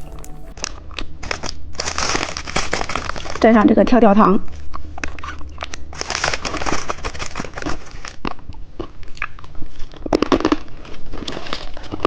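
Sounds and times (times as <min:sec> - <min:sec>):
popping candy crackling: 0:00.0 - 0:00.5.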